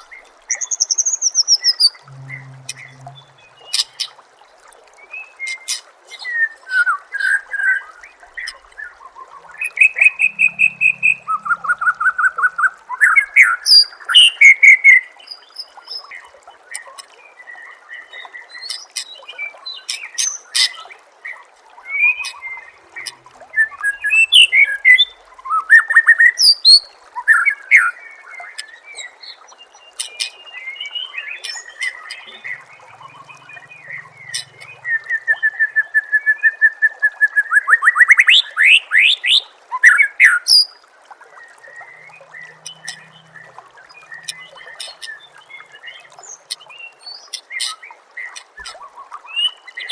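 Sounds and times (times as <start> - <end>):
songbird singing: 0.5 - 4.1, 8.4 - 14.6, 28.4 - 36.7, 41.4 - 47.7.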